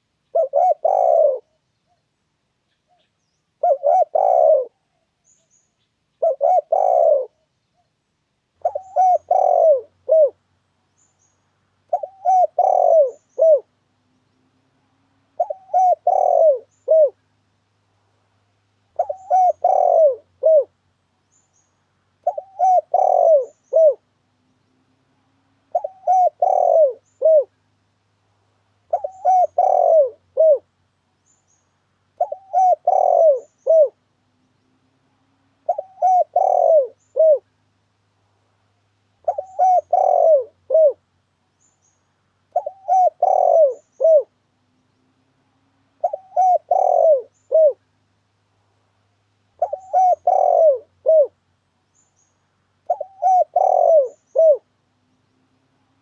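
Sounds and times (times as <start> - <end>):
dove cooing: 0.0 - 1.6, 3.6 - 5.2, 6.2 - 7.5, 8.6 - 10.4, 11.8 - 13.8, 14.7 - 17.3, 18.9 - 20.8, 22.2 - 24.1, 25.4 - 27.6, 28.9 - 30.7, 32.1 - 34.1, 35.5 - 37.6, 39.2 - 41.1, 42.5 - 44.5, 45.9 - 47.9, 49.6 - 51.4, 52.8 - 54.8.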